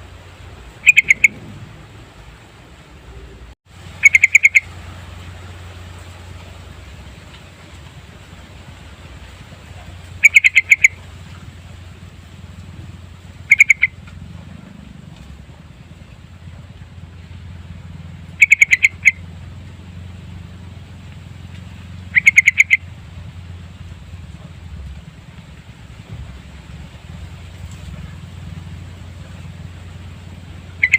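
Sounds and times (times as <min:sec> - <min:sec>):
low hum: 0:00.0 - 0:30.9
bird chattering: 0:00.8 - 0:01.7, 0:04.0 - 0:04.7, 0:09.7 - 0:11.0, 0:13.4 - 0:14.1, 0:18.3 - 0:19.3, 0:22.0 - 0:22.9, 0:30.7 - 0:30.9.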